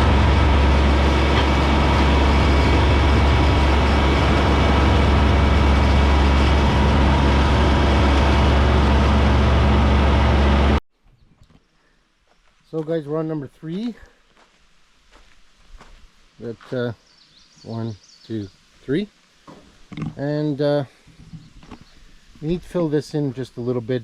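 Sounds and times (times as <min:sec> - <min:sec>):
diesel tractor engine running: 0:00.0 - 0:10.8.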